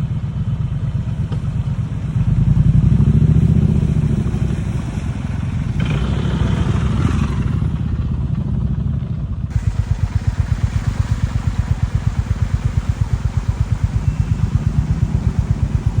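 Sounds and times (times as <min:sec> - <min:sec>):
motorcycle engine idling: 0:09.3 - 0:16.0.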